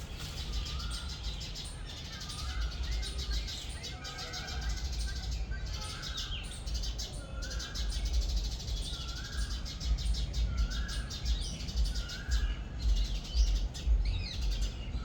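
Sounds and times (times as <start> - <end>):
steady low rumble: 0.0 - 1.4, 12.3 - 15.0.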